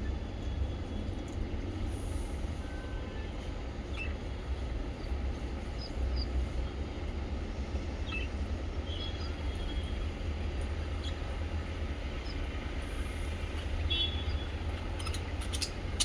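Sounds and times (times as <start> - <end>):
steady low rumble: 3.4 - 16.0
pet birds chirping faintly: 13.4 - 16.0.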